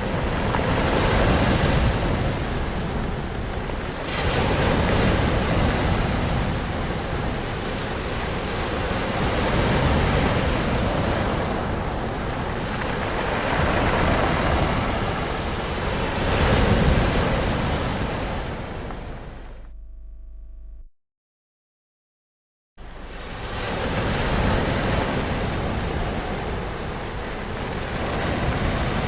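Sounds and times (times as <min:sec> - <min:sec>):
ocean waves breaking: 0:00.0 - 0:19.6, 0:22.8 - 0:29.0
wind on microphone: 0:00.0 - 0:19.6.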